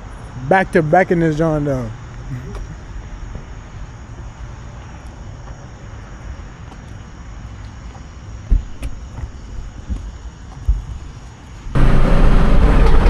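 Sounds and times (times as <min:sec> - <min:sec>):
car engine running: 0:11.8 - 0:13.0.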